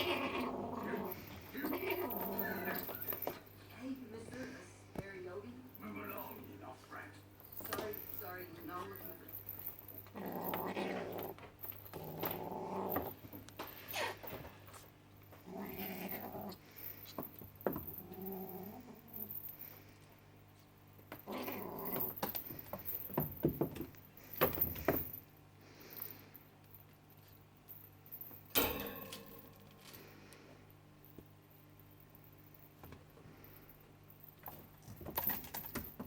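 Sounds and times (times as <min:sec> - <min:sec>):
kittens mewing: 0:00.0 - 0:03.4.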